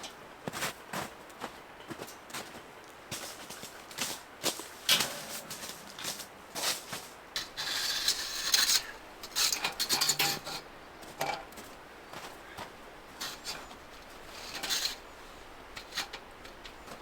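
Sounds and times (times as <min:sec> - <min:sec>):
rubbing and scraping: 0:07.4 - 0:11.5, 0:13.0 - 0:17.0.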